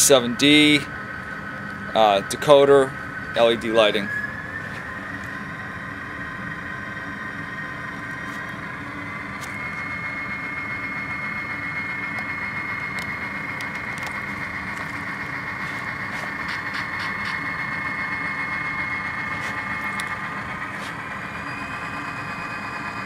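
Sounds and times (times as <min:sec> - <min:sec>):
high whine: 0:00.0 - 0:23.0
model diesel engine sound from speaker: 0:00.0 - 0:23.0.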